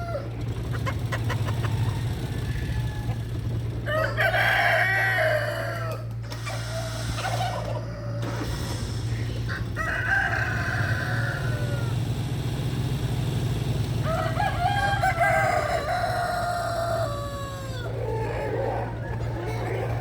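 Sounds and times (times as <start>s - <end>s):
rooster crowing: 0.0s - 0.4s, 1.6s - 8.4s, 9.5s - 12.1s, 14.0s - 19.3s.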